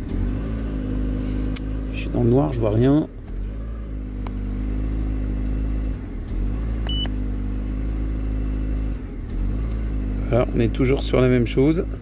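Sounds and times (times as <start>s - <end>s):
car engine idling unevenly: 1.0s - 7.1s, 7.9s - 12.0s
short electronic beep: 6.9s - 7.1s.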